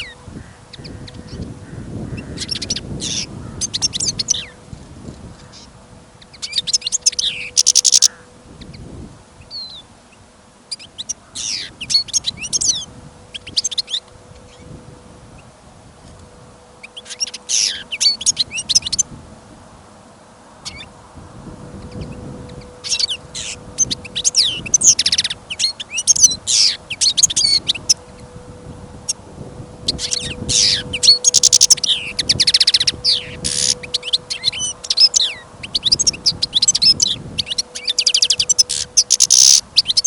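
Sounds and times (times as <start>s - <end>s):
goldfinch twittering: 0.0s - 4.6s, 5.4s - 8.8s, 10.7s - 14.8s, 16.7s - 19.1s, 20.6s - 20.9s, 21.8s - 28.3s, 29.8s - 40.0s
wind on microphone: 0.0s - 20.0s, 20.6s - 40.0s.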